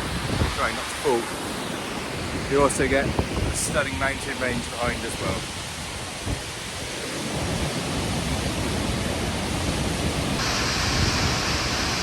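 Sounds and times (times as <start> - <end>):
waterfall rushing: 3.8 - 12.0.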